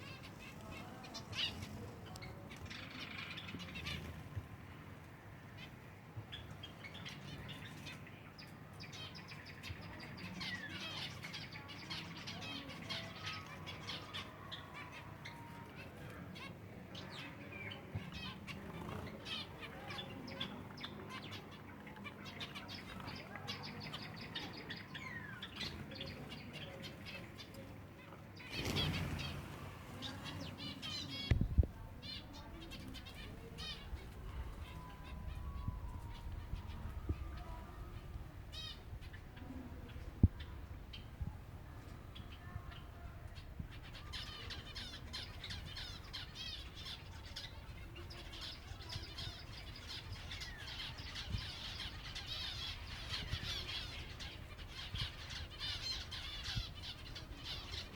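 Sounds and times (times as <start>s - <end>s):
sparrows twittering: 0.0s - 57.9s
wingbeats flurry: 28.4s - 31.4s.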